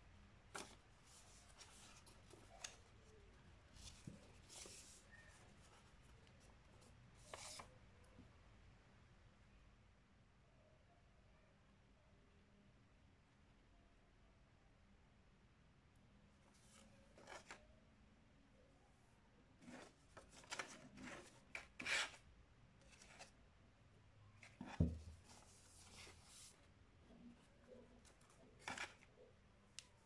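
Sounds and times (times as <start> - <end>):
paper rustling: 0.5 - 7.7, 16.5 - 17.6, 19.6 - 22.2, 22.8 - 23.4, 24.4 - 26.7, 27.7 - 30.0.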